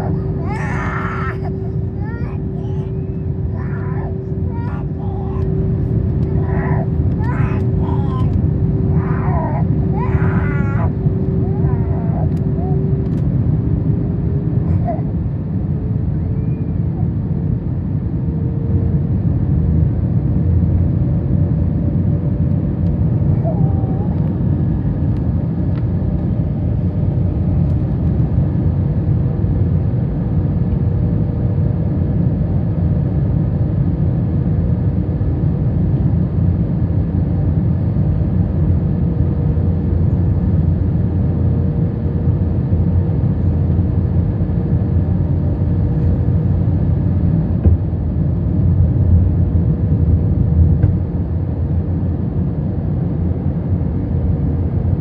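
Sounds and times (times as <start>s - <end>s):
faint steady hum: 0.0s - 30.8s
airliner cabin engine rumble: 0.0s - 55.0s.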